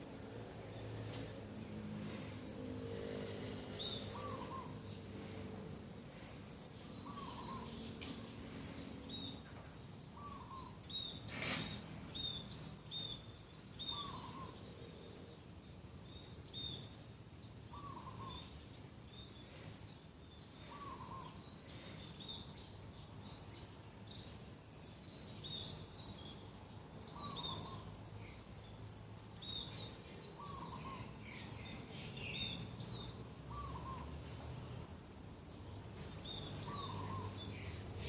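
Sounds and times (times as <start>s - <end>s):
small birds chirping: 0.0s - 38.0s
dove cooing: 3.0s - 4.8s, 36.7s - 37.4s.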